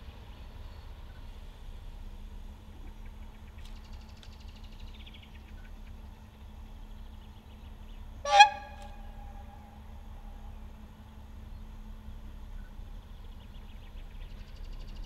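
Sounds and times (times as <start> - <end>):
distant diesel railcar rumble: 0.0 - 15.0
bird trilling: 8.2 - 9.7.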